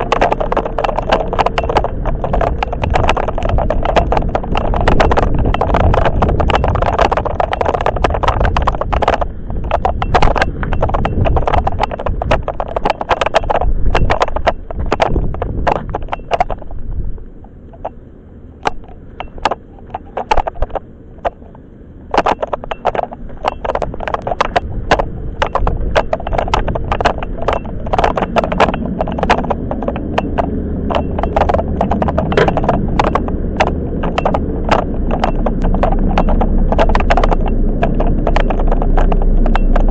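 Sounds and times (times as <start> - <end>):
low train rumble: 0.0 - 13.0, 13.6 - 39.9
train wheels clacking over rail joints: 0.0 - 16.8, 22.2 - 39.9.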